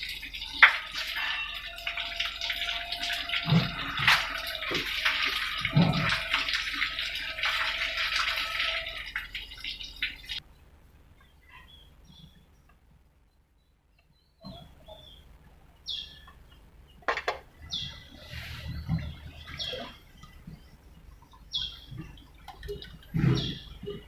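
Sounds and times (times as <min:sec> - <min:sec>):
liquid pouring and splashing: 0:00.0 - 0:10.4, 0:21.2 - 0:24.0.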